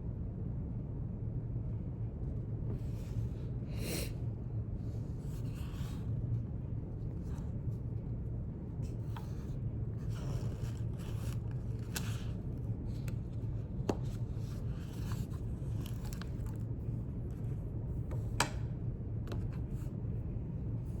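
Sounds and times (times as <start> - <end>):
steady low hum: 0.0 - 21.0
soft scrapes and paper rustles: 4.8 - 8.0, 8.7 - 17.6.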